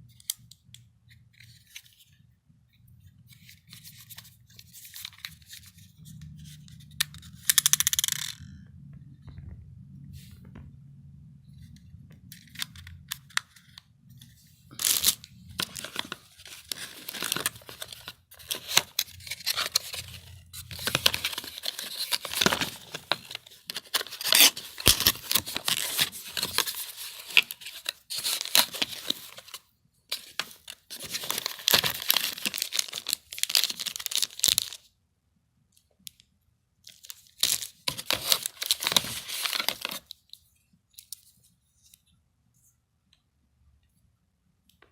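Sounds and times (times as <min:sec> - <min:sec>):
packaging tearing and crinkling: 0:14.7 - 0:34.8, 0:37.0 - 0:40.1.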